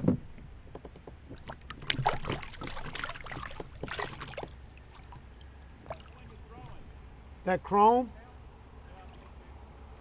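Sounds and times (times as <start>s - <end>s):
small knocks and clicks: 0.0s - 2.1s
water splashing and dripping: 1.3s - 6.9s.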